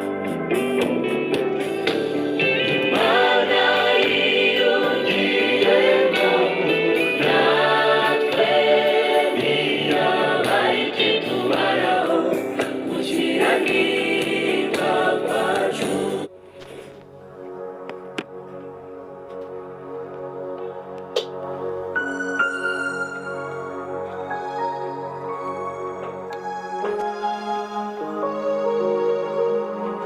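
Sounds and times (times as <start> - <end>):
instrumental backing: 0.0 - 19.6, 20.5 - 30.0
choir singing gospel song: 2.4 - 16.3.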